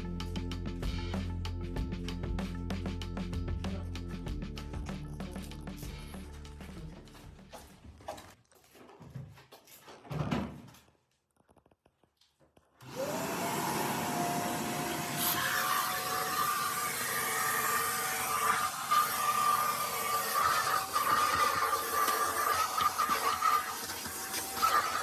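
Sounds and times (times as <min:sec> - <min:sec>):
vacuum cleaner running: 0:12.8 - 0:25.0.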